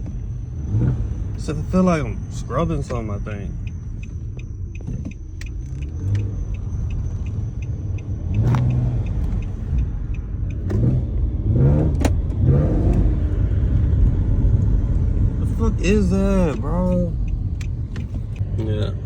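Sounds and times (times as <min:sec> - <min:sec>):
car interior rumble: 0:00.0 - 0:19.0
faint light ticks: 0:16.3 - 0:18.4.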